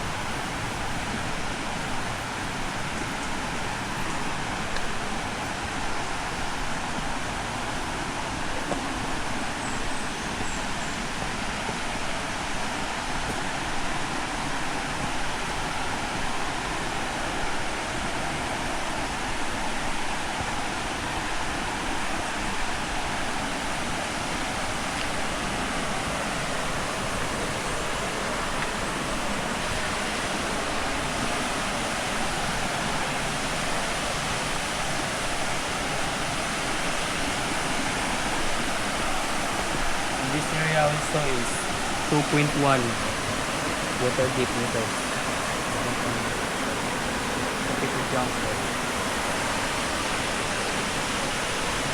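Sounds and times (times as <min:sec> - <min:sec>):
waterfall pouring: 0:14.8 - 0:51.9.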